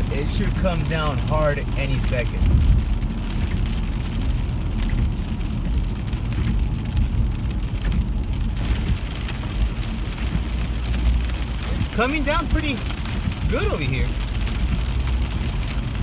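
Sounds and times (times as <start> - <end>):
heavy rain hiss: 0.0 - 16.0
low rumble: 1.2 - 16.0.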